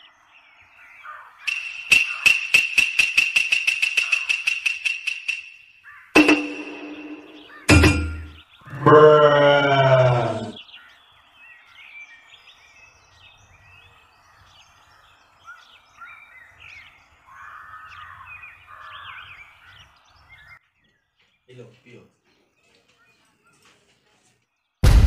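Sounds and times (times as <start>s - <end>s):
faint birds chirping: 0.0s - 2.8s, 3.9s - 24.8s
loud call with wavering pitch: 6.2s - 10.6s.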